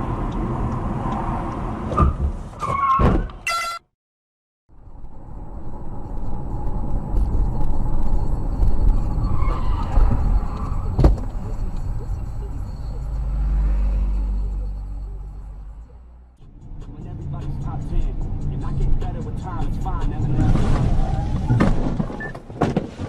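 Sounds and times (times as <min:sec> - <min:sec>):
car engine and tyre rumble: 0:00.0 - 0:03.4, 0:04.7 - 0:23.0.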